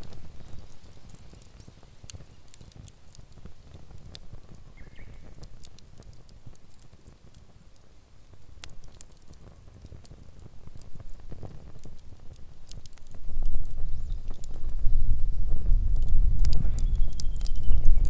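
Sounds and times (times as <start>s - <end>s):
campfire crackling and popping: 0.0s - 18.0s
faint chirp: 4.7s - 5.2s, 16.8s - 18.0s.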